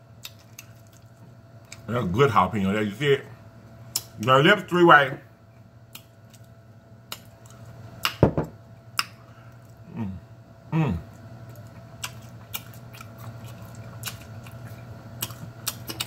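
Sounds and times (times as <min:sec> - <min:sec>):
person chewing food: 0:00.2 - 0:01.9, 0:05.9 - 0:08.2, 0:11.0 - 0:16.0
person humming: 0:09.8 - 0:11.1.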